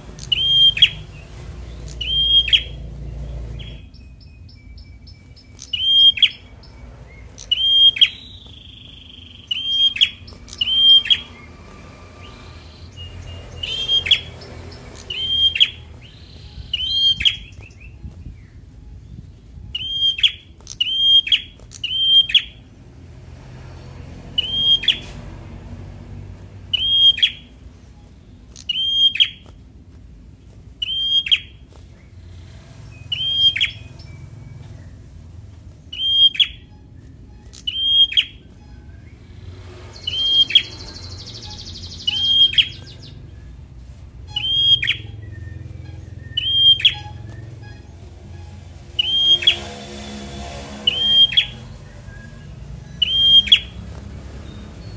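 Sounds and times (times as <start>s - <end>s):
bird calling short sharp notes: 12.6s - 22.6s, 35.9s - 50.1s.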